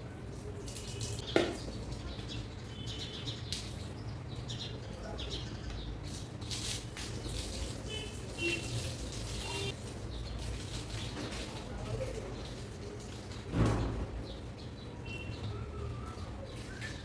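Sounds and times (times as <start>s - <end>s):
water splashing on hair: 0.5s - 2.1s, 6.4s - 11.7s
birds chirping: 0.8s - 6.4s, 7.2s - 17.0s.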